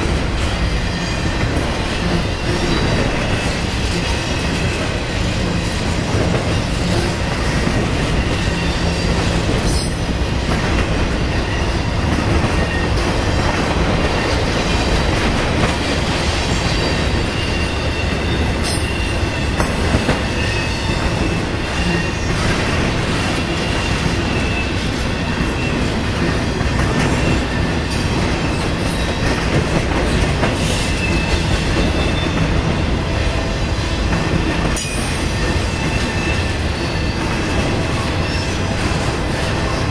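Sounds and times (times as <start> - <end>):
steel wheels rumbling on rail: 0.0 - 39.9
high wheel squeal: 8.1 - 10.1, 16.6 - 19.6, 34.8 - 38.6.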